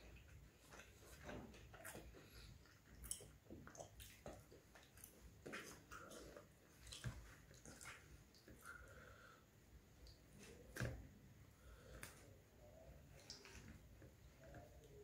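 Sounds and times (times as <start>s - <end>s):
person chewing: 0.6s - 8.9s.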